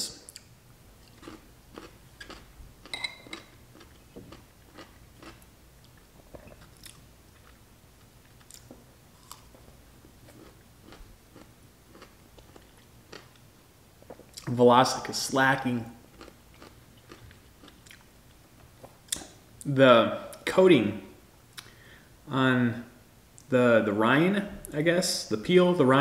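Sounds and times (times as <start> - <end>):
man chewing pickles: 0.3 - 14.6, 16.0 - 19.4.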